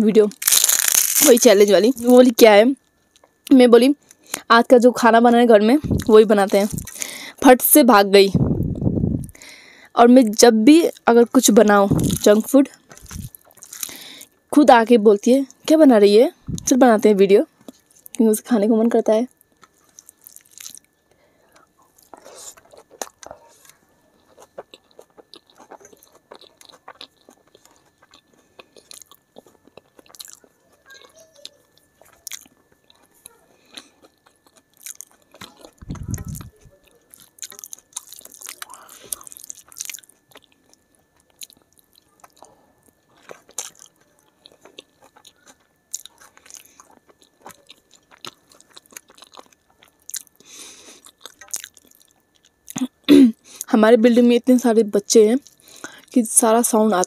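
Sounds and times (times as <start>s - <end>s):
chewing and crunching: 0.2s - 4.5s, 5.8s - 7.4s, 8.4s - 14.5s, 17.5s - 18.2s, 19.3s - 53.7s, 55.3s - 56.2s.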